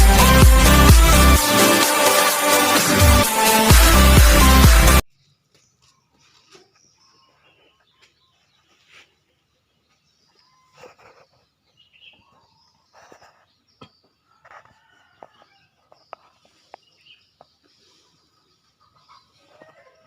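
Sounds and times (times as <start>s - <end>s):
faint chicken calls: 5.2s - 20.0s.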